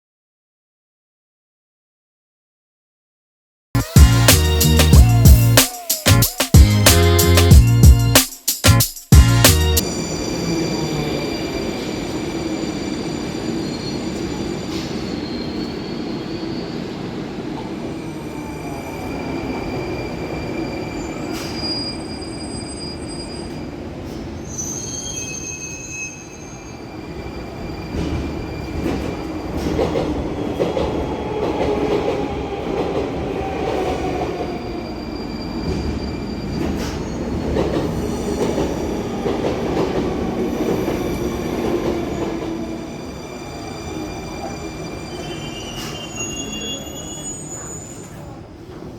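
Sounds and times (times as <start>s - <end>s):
train cars rumbling: 3.8s - 48.9s
wheels and brakes squealing: 9.8s - 17.2s, 18.0s - 29.9s, 34.3s - 39.2s, 40.5s - 48.5s.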